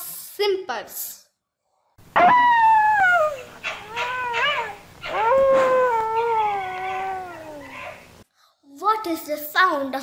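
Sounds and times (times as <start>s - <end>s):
fox calling with whining cries: 2.2s - 8.2s.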